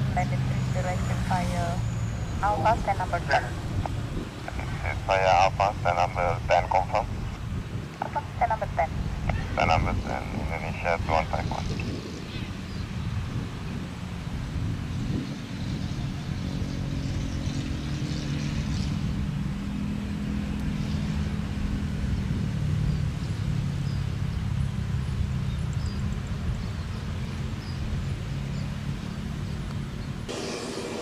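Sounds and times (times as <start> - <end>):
low engine rumble: 0.0 - 16.5.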